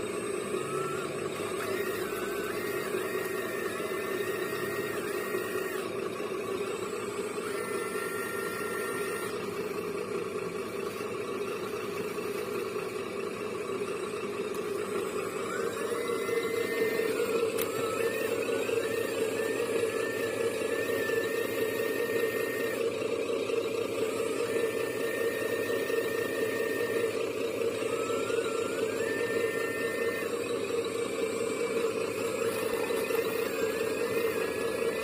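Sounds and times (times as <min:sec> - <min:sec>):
small electric motor whirring: 0:00.0 - 0:35.0
thin rising whine: 0:00.0 - 0:35.0.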